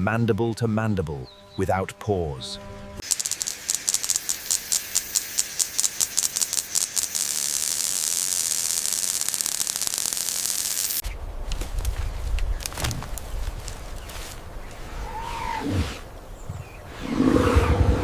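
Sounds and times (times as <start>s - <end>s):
insect chorus buzzing: 2.5s - 11.2s, 11.9s - 17.6s.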